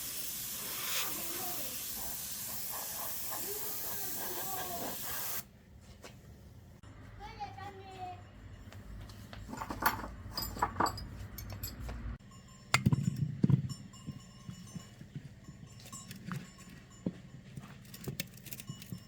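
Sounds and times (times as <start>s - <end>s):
knocks and metallic clinks: 8.2s - 19.0s.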